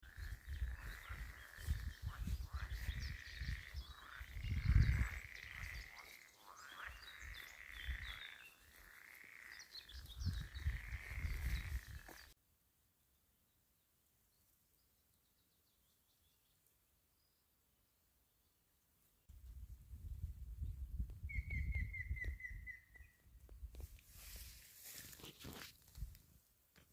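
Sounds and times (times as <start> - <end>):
birds chirping: 0.0 - 12.4.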